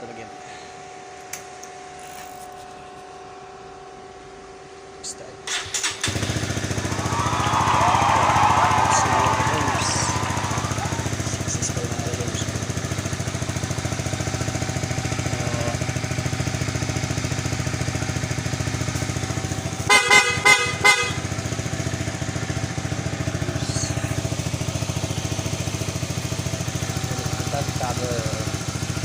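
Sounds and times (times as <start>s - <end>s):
motorcycle engine idling: 5.5s - 29.0s
horn short toots: 19.8s - 21.4s.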